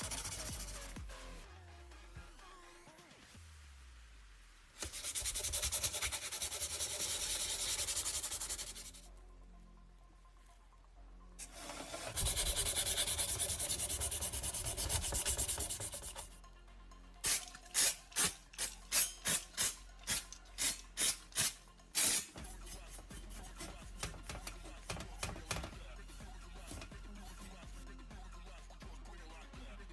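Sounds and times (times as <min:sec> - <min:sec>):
hand sanding strokes: 0:00.0 - 0:01.0, 0:04.8 - 0:09.0, 0:11.5 - 0:16.3, 0:17.2 - 0:25.7.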